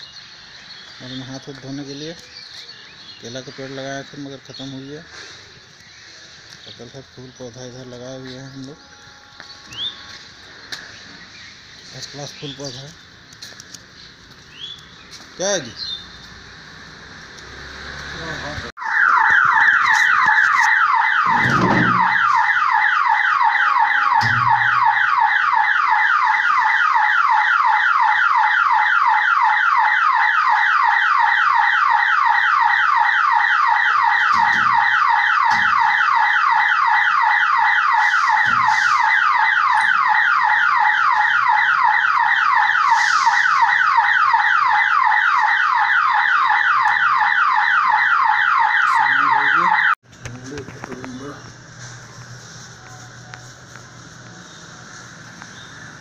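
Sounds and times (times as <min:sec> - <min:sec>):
level-crossing warning buzzer: 0:17.1 - 0:50.0.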